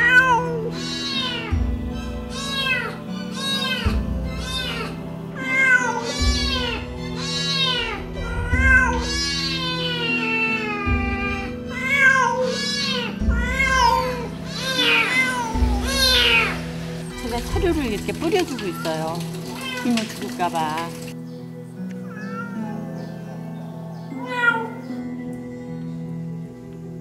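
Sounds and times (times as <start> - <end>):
cat meowing distressed: 0.0 - 1.5, 2.3 - 16.6, 24.2 - 24.8
soft background music: 0.0 - 27.0.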